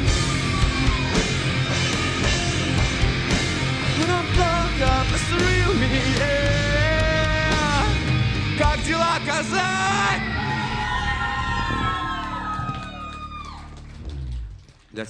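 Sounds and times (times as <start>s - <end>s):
drum hits: 0.0s - 9.1s
loud rock music: 0.0s - 13.0s.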